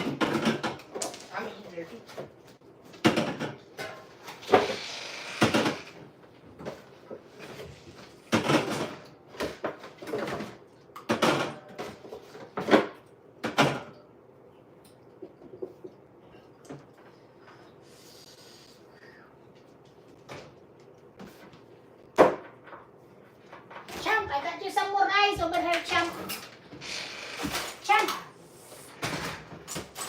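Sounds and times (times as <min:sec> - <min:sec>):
household knocks and clatters: 0:00.0 - 0:01.4, 0:02.1 - 0:04.8, 0:06.5 - 0:13.9.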